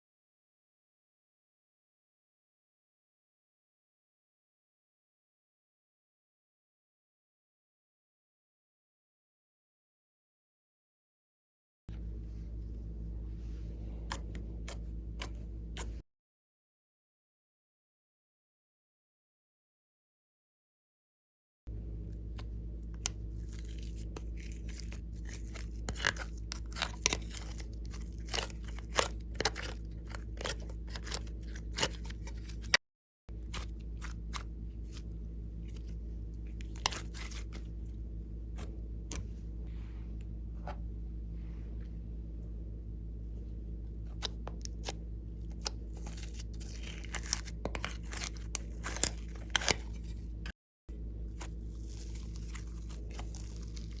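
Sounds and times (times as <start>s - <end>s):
steady low hum: 11.9s - 16.0s, 21.7s - 54.0s
slime crackling and popping: 22.9s - 32.8s, 46.0s - 50.1s, 51.4s - 54.0s.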